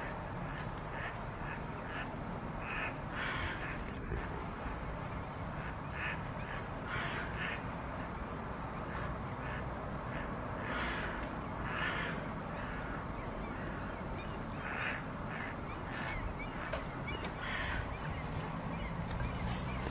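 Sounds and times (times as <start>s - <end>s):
harsh bird calls: 0.5s - 19.9s.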